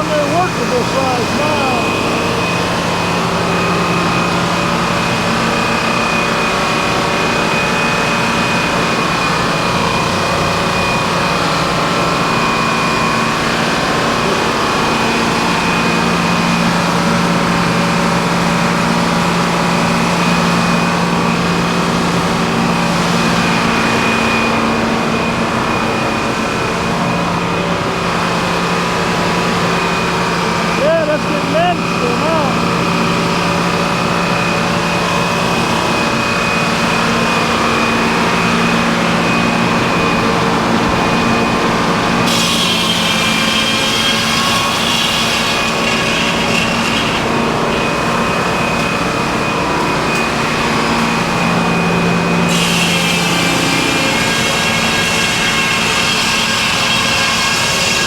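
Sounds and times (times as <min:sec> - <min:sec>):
high machine whine: 0:00.0 - 0:58.0
sawmill engine hum: 0:00.0 - 0:58.0.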